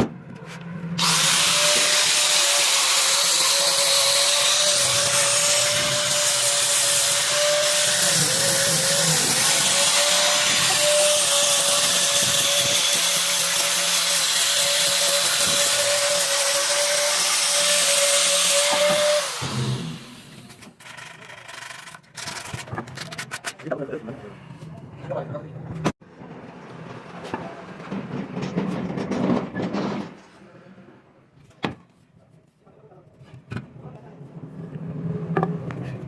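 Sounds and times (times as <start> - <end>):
power tool motor whine: 1.0 - 20.5.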